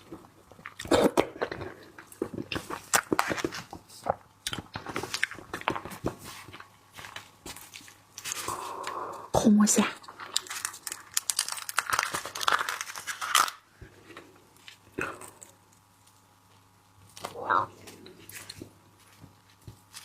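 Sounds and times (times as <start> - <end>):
person chewing and biting: 0.5 - 5.8.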